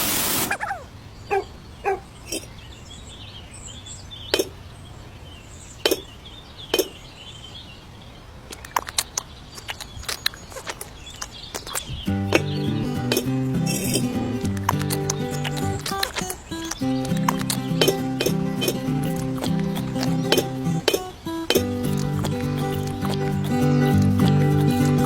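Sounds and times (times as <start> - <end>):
music: 12.1 - 25.0
faint bird chirps: 15.0 - 24.0.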